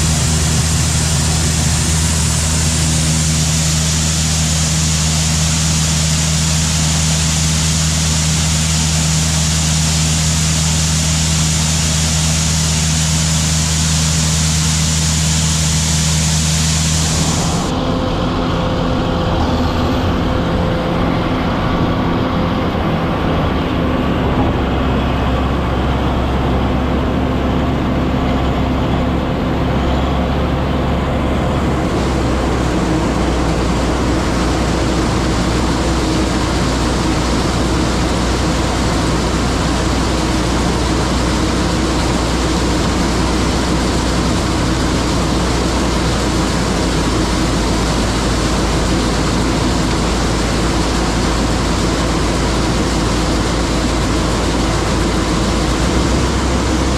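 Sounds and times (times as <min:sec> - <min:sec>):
bright hiss: 0:00.0 - 0:17.7
combine harvester engine hum: 0:00.0 - 0:56.9.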